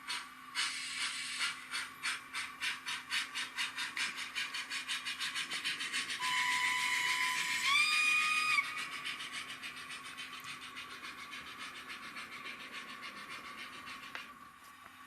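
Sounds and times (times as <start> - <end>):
steam chuffs: 0.0 - 14.4
model train whistle: 6.2 - 8.8.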